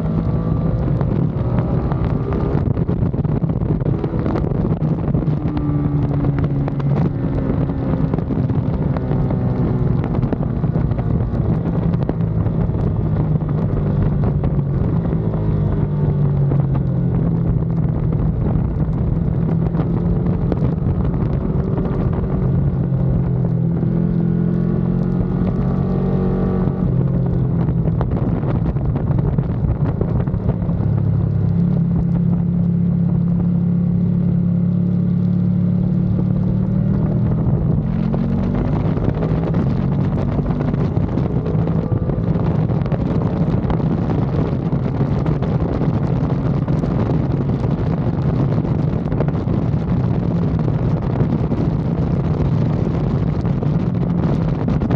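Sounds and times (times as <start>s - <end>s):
motorcycle engine revving: 0.0s - 54.9s
wind rushing over microphone: 0.0s - 54.9s.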